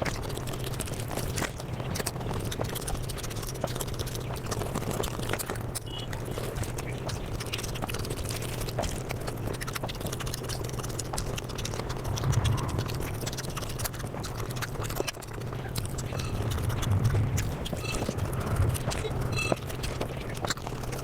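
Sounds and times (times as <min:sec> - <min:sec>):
sped-up chewing and mouth smacks: 0:00.0 - 0:21.0
steady low hum: 0:10.4 - 0:21.0.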